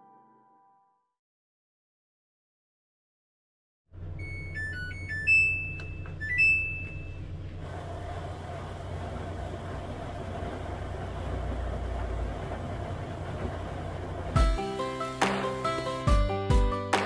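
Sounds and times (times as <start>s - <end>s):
steady low hum: 4.0s - 15.0s
washing machine beep melody: 4.2s - 7.3s, 14.3s - 16.7s.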